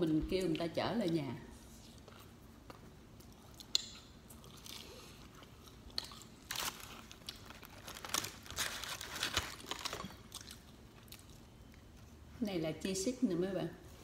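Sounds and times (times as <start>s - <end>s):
paper wrapper crinkling: 6.5s - 10.3s.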